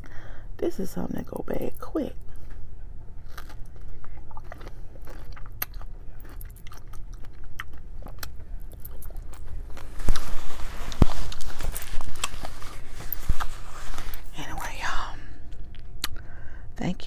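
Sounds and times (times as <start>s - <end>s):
chewing strawberry: 3.2s - 13.6s, 15.7s - 16.2s.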